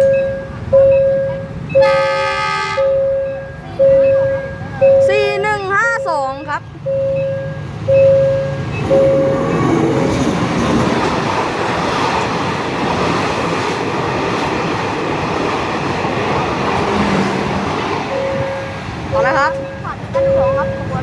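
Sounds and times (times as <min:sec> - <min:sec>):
on-off warning tone: 0:00.0 - 0:06.2, 0:06.8 - 0:09.9, 0:18.0 - 0:21.0
train cars rattling: 0:00.0 - 0:21.0
train wheels rushing on rails: 0:00.0 - 0:21.0.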